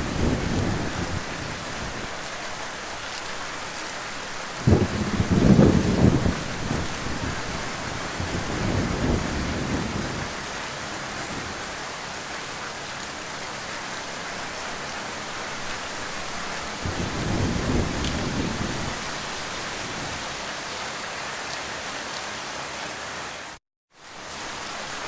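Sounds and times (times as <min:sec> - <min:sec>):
thunder rumbling: 0:00.0 - 0:02.2, 0:04.6 - 0:11.8, 0:16.6 - 0:20.4
heavy rain: 0:00.0 - 0:25.0.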